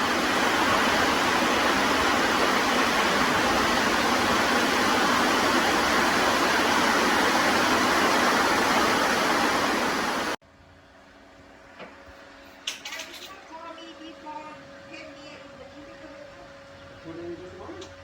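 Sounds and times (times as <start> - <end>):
heavy rain pouring: 0.0 - 10.4.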